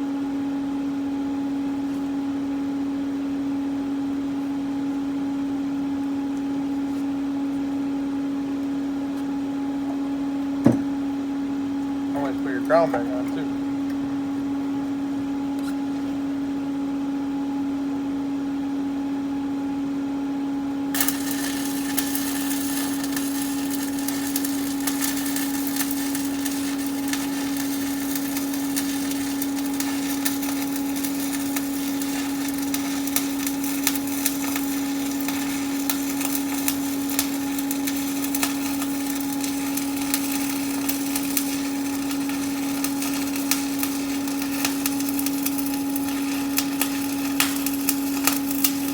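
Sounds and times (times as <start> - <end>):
steady hum: 0.0 - 48.9
welding arc crackling and sizzling: 12.1 - 14.0, 20.9 - 48.9.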